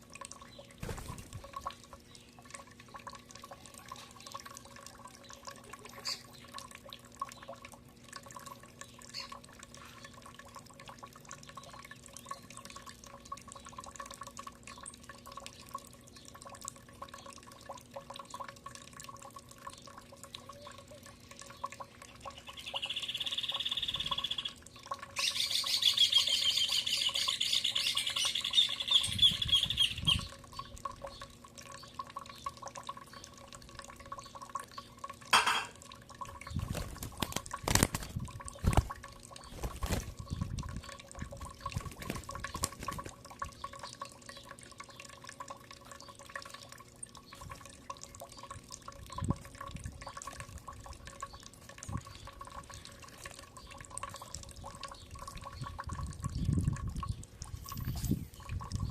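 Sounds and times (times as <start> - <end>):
faint steady hum: 0.0 - 58.9
light clicks and drips: 0.0 - 58.9
bird song: 19.7 - 33.4
bird calling: 22.3 - 24.6, 25.2 - 30.6.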